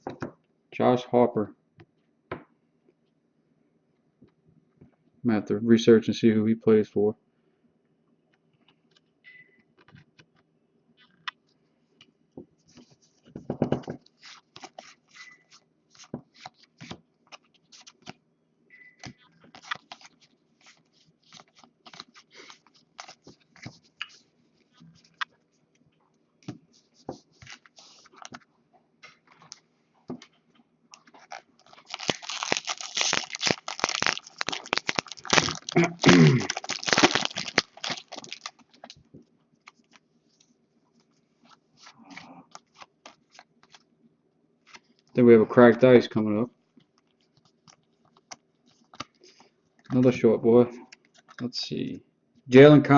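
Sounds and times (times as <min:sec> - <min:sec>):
trading cards flipped: 0:19.0 - 0:24.2
packaging crinkling loudly: 0:19.5 - 0:23.3, 0:31.0 - 0:39.0.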